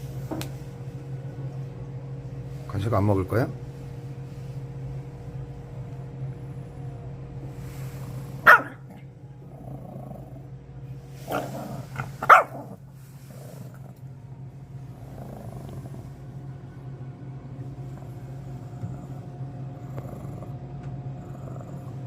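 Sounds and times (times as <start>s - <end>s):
dog growling: 6.0s - 16.4s, 17.8s - 22.0s
dog barking: 8.4s - 9.0s, 12.1s - 12.8s.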